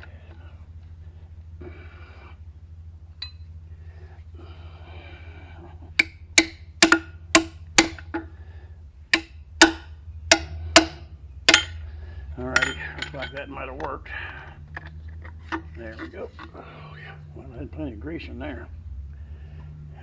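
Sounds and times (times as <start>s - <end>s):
sharp metal knocks with ring: 6.0s - 8.2s, 9.2s - 11.8s, 12.6s - 13.4s.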